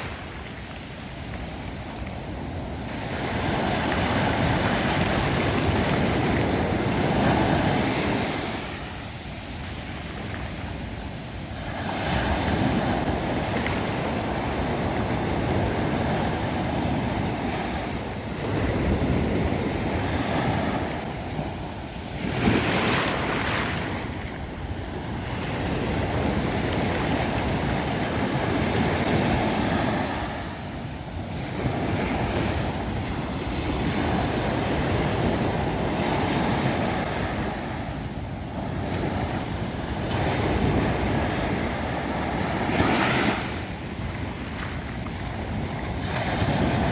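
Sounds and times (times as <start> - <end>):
sea waves breaking on shore: 0.0 - 46.9.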